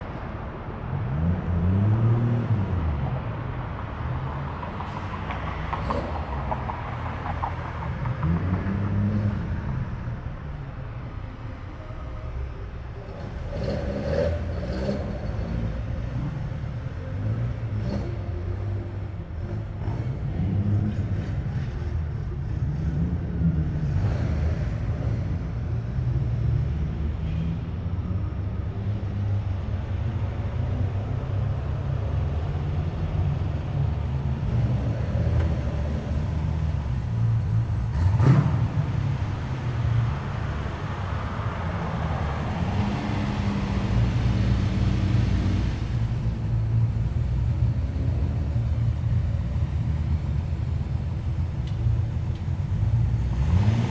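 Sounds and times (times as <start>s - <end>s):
car engines rumbling: 0.0s - 53.9s
engine revving: 13.0s - 25.5s, 31.5s - 53.9s.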